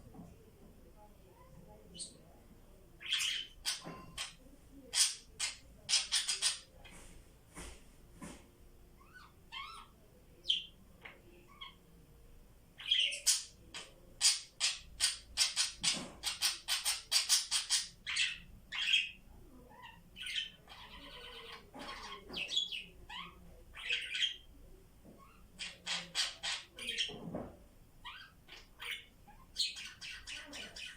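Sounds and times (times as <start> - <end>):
parrots chirping and squawking: 9.0 - 9.9, 19.8 - 24.4, 28.0 - 30.9.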